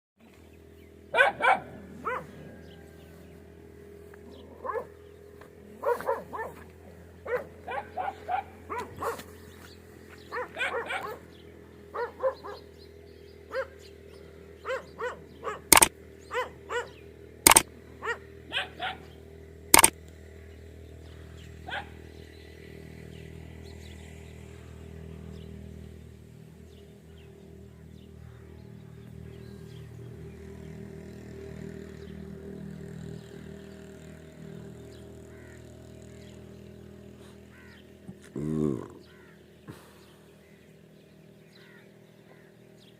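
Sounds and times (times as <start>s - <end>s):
dogs barking: 1.1s - 2.6s, 4.4s - 5.0s, 5.7s - 9.4s, 10.2s - 11.3s, 11.9s - 12.8s, 13.5s - 13.8s, 14.6s - 19.2s, 21.6s - 22.0s.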